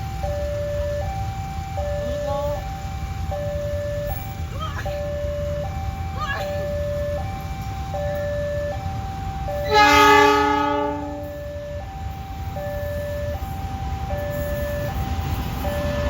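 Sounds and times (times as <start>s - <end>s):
level crossing two-tone signal: 0.0s - 16.0s
train horn: 9.6s - 11.4s.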